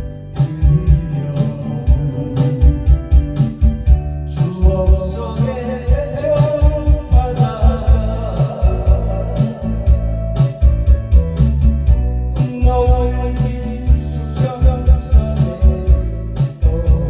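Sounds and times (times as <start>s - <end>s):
bass keyboard and guitar backing: 0.0s - 17.0s
trot song with dance beat: 0.0s - 17.0s.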